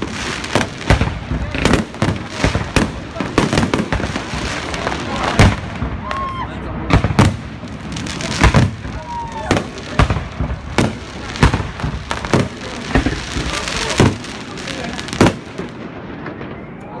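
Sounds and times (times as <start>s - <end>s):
crackling hiss of fireworks: 0.0s - 17.0s
firework bangs: 0.0s - 17.0s.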